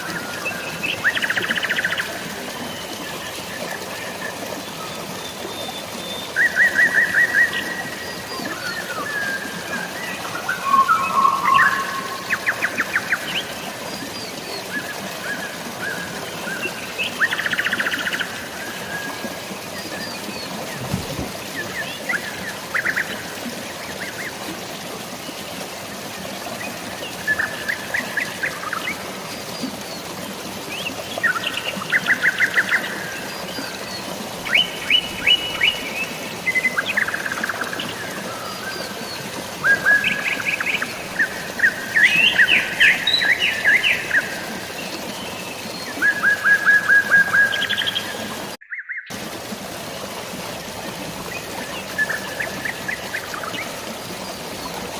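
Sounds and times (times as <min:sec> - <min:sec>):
rain: 0:00.0 - 0:54.9
running water: 0:00.0 - 0:54.9
birds chirping: 0:10.1 - 0:14.4.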